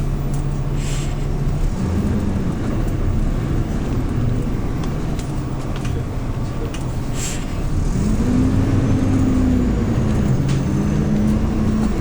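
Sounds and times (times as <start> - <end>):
bus engine running: 0.0 - 12.0.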